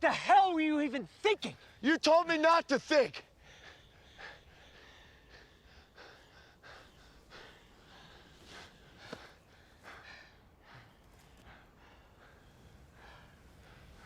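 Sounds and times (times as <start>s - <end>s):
heavy human breathing: 3.2s - 14.0s.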